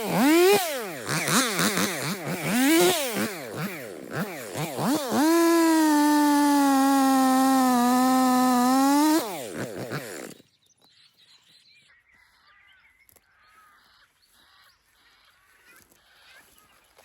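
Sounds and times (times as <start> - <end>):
chainsaw running: 0.0 - 10.4.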